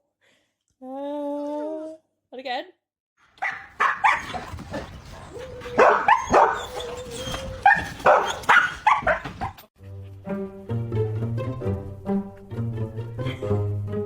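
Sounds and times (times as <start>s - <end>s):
dog barking: 3.3s - 9.6s.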